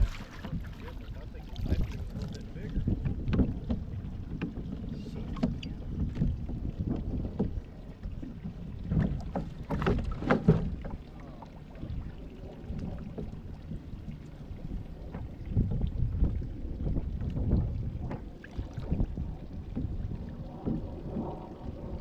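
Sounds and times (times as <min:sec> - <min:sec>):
water sounds: 0:00.0 - 0:22.0
wind rumbling on microphone: 0:00.0 - 0:22.0
knocks on boat: 0:01.7 - 0:07.6, 0:08.3 - 0:11.0, 0:19.6 - 0:21.3.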